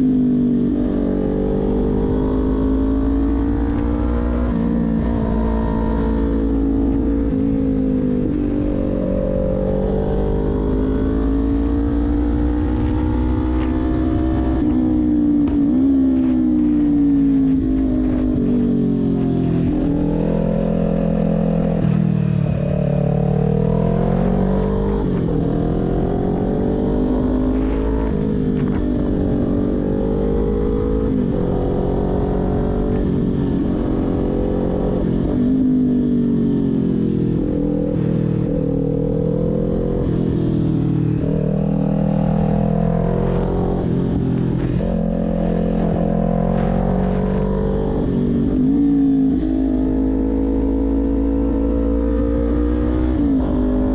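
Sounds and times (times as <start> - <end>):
motorcycle engine revving and shifting: 0.0 - 53.9.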